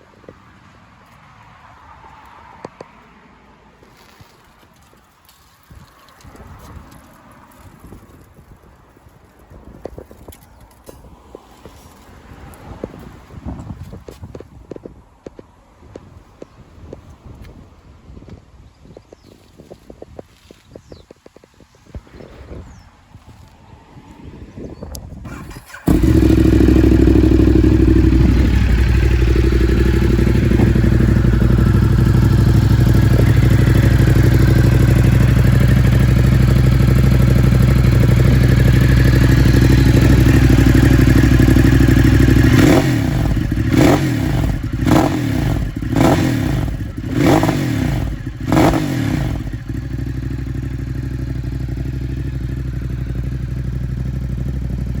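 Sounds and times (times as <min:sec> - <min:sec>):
motorcycle engine idling: 0:25.3 - 0:55.0
motorcycle engine revving: 0:25.3 - 0:55.0.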